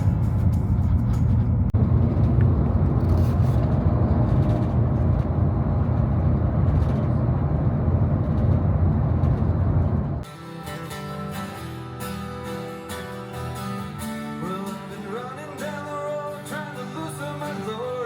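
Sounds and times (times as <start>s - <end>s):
vehicle rumble from inside: 0.0s - 10.3s.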